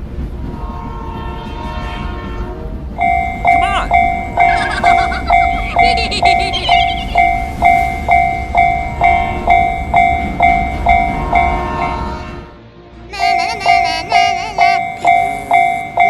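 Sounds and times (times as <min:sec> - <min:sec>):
train passing: 0:00.0 - 0:16.0
level-crossing warning bell: 0:02.9 - 0:12.5, 0:13.2 - 0:16.0.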